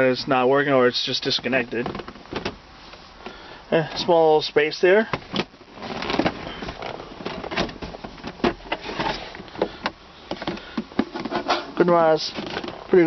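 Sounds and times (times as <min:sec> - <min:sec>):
rubbing and rustling: 0:05.2 - 0:13.0.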